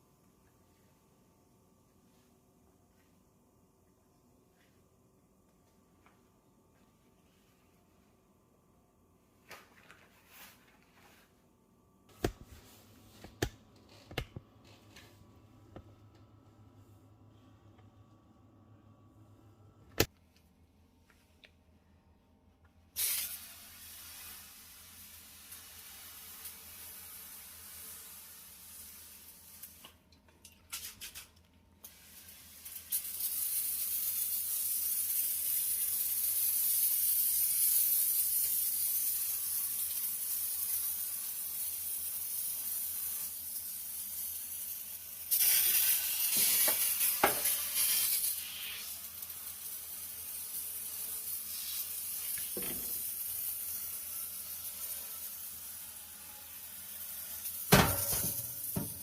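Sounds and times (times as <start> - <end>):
spray can hissing: 23.0 - 29.9, 31.8 - 55.8.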